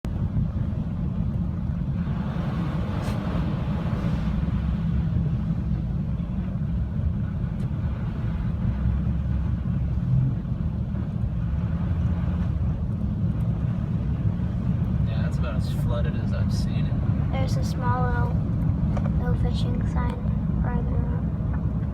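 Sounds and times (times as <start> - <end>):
car rumbling on the move: 0.0 - 21.9
vehicle passing hiss: 2.2 - 4.7.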